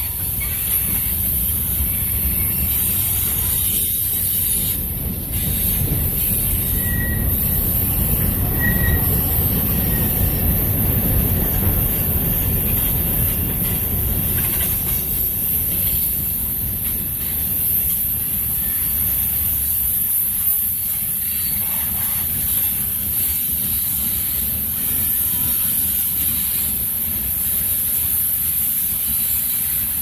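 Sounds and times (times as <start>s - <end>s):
freight train wheels rumbling: 0.0s - 30.0s
high wheel squeals: 5.8s - 13.7s.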